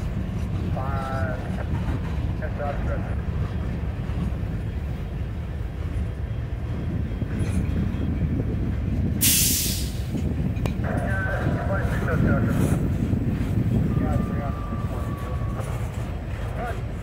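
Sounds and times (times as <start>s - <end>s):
freight train wheels rumbling: 0.0s - 17.0s
loud hiss: 9.2s - 10.0s.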